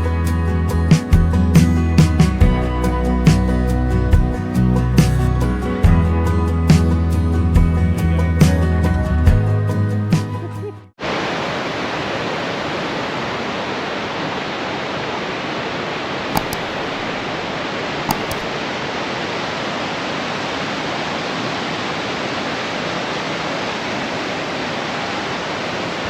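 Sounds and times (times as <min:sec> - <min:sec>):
waterfall roaring: 0:11.0 - 0:26.0.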